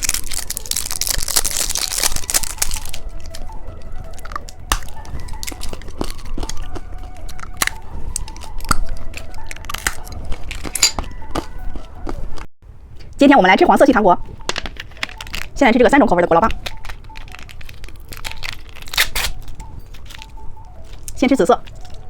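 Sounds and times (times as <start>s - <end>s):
plastic wrapper crinkling and tearing: 0.0s - 11.0s, 14.4s - 15.6s, 16.5s - 22.0s
candy and packaging clicks: 0.0s - 11.5s, 14.4s - 22.0s.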